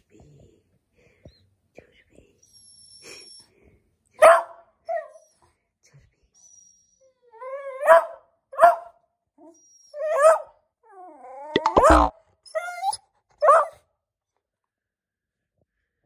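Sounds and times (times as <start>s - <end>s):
dog barking and yelping: 4.2s - 5.3s, 7.4s - 9.0s, 9.9s - 10.6s, 11.5s - 13.8s.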